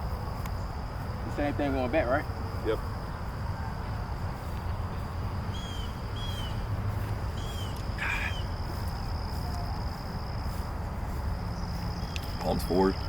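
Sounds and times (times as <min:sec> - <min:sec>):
high insect drone: 0:00.0 - 0:13.0
bird chirping: 0:05.4 - 0:09.8, 0:10.5 - 0:13.0
harsh bird call: 0:07.4 - 0:08.6.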